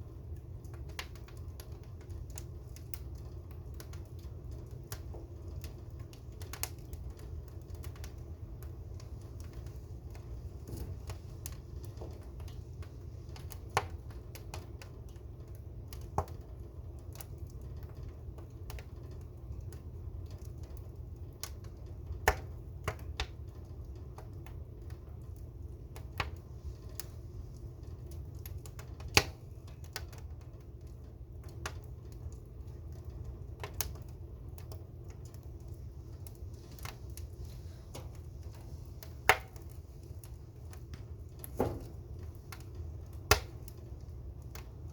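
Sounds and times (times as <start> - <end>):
fire crackling and popping: 0.0 - 44.9
steady low rumble: 23.4 - 44.9.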